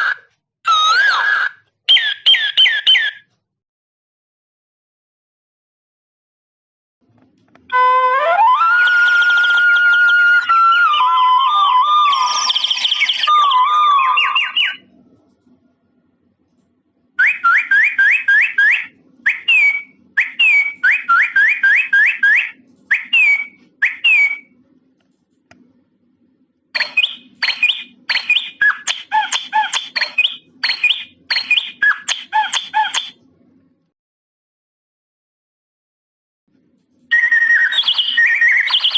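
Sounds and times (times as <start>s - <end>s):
electronic doorbell bird chirps: 1.9s - 3.2s, 8.7s - 14.9s, 17.2s - 24.5s, 26.8s - 33.2s, 37.1s - 38.9s.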